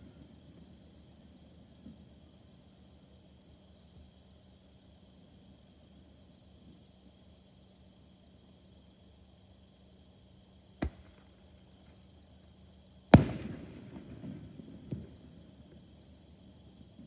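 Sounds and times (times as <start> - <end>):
fireworks bursting: 10.8 - 11.3, 13.2 - 15.5.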